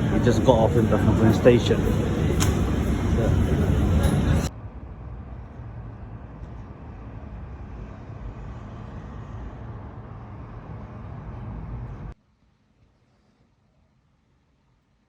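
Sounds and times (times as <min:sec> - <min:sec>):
vehicle engine running: 0:00.0 - 0:04.5
road traffic rumble: 0:00.0 - 0:12.2.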